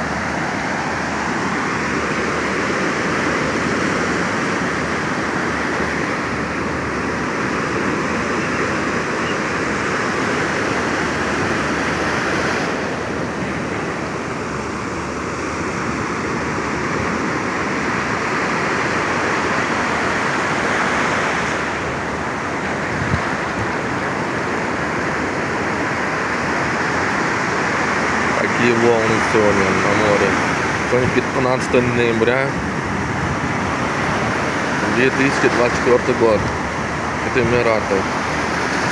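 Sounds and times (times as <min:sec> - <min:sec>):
waves breaking on beach: 0:00.0 - 0:38.9.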